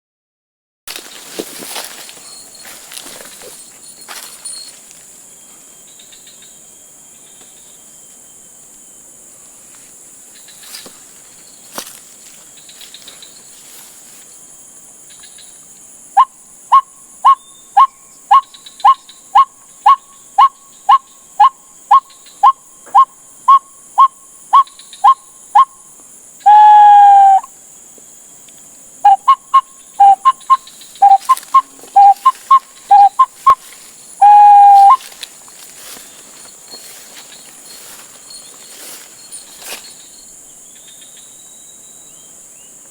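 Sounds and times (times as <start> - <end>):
waterhen calling: 26.5 - 27.5, 29.0 - 35.2.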